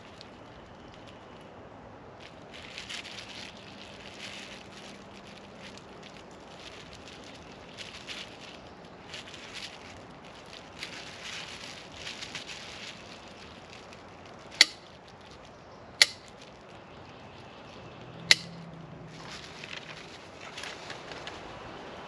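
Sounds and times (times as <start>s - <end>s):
light rustling: 2.2s - 21.8s
sharp clicks or knocks: 16.0s - 16.3s, 18.3s - 18.6s.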